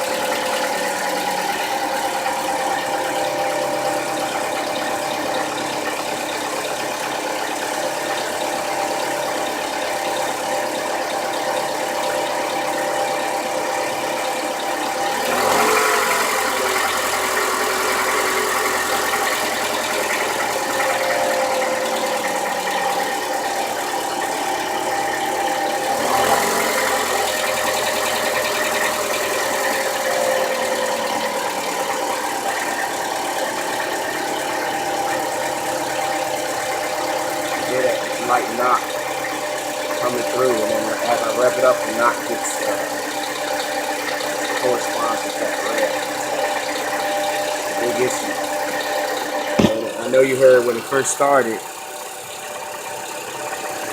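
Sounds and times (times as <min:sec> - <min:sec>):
engine knocking: 0:00.0 - 0:48.9
car engine idling and revving: 0:15.1 - 0:20.9, 0:25.1 - 0:30.4.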